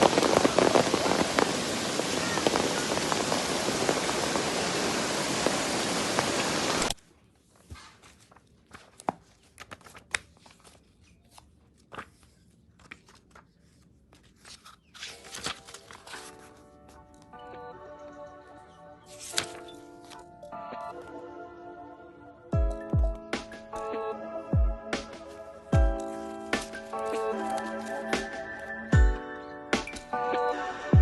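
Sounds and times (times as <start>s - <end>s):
heavy rain: 0.0s - 7.0s.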